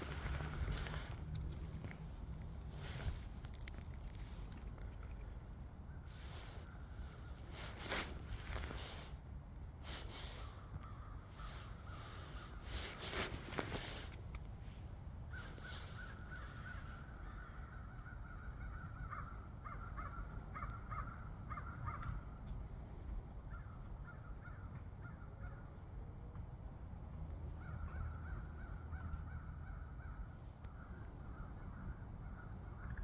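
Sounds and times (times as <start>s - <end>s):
low steady rumble: 0.0s - 33.0s
crows cawing: 15.3s - 22.2s.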